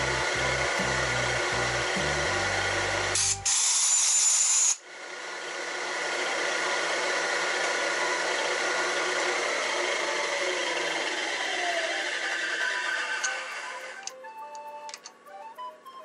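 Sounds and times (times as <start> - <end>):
milling machine whirring: 0.0 - 16.0
loud hiss: 3.1 - 4.8.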